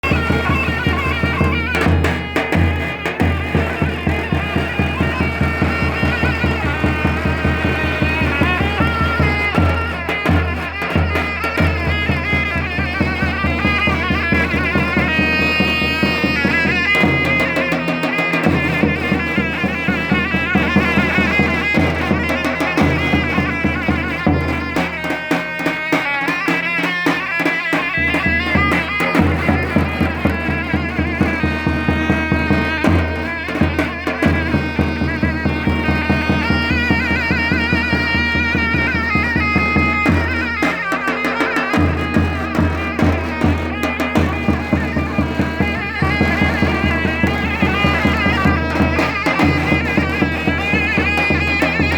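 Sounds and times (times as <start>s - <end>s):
shrill reed pipe melody: 0.0s - 51.9s
steady drum beats: 0.0s - 51.9s.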